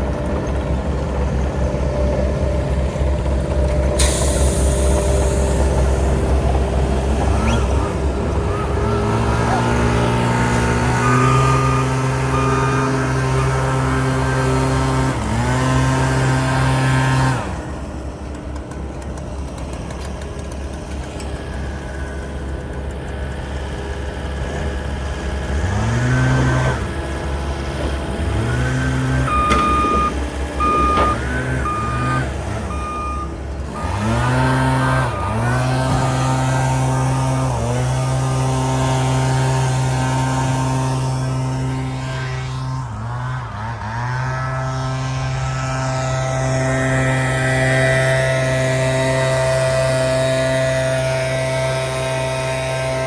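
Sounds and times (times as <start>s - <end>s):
heavy machine engine revving: 0.0s - 53.0s
reversing alarm beeping: 7.3s - 14.8s, 28.4s - 37.1s.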